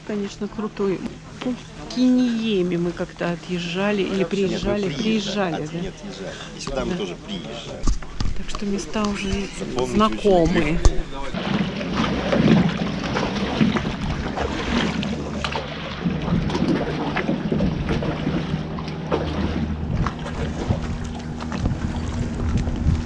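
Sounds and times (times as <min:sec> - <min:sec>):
boat engine running: 0:00.0 - 0:23.0
wind buffeting microphone: 0:07.9 - 0:23.0.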